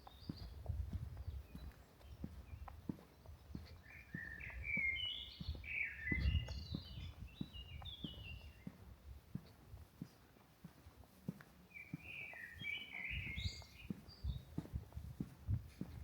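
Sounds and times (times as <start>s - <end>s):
footsteps tapping: 0.0s - 16.0s
songbird whistling: 3.8s - 8.6s, 11.8s - 14.4s.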